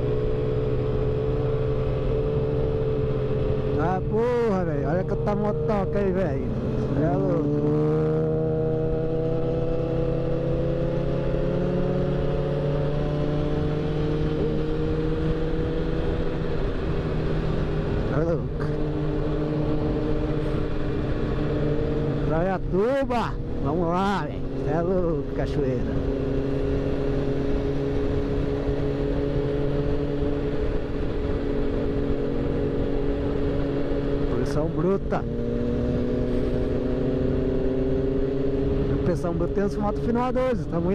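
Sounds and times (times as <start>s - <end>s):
low wind rumble: 0.0s - 40.9s
motorcycle engine running steadily: 0.0s - 40.9s
road noise: 0.0s - 40.9s.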